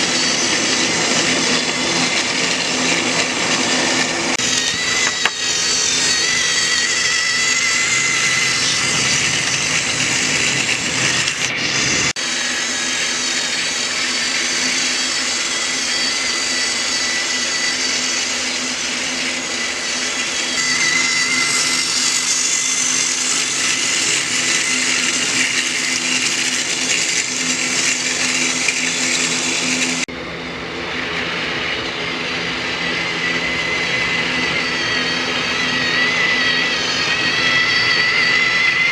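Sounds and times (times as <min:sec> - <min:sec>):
toy train motor whirring: 0:02.9 - 0:30.1.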